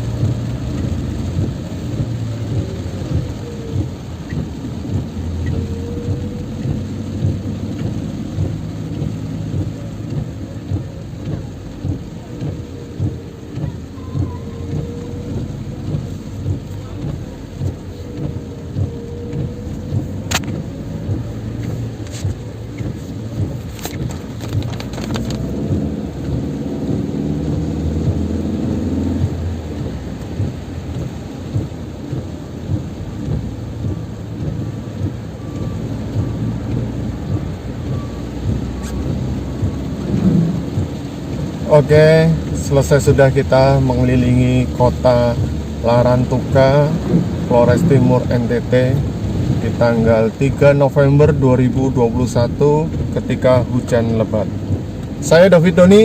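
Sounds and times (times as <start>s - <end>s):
heavy rain drumming: 0.0s - 56.0s
sharp clicks: 4.3s - 41.6s.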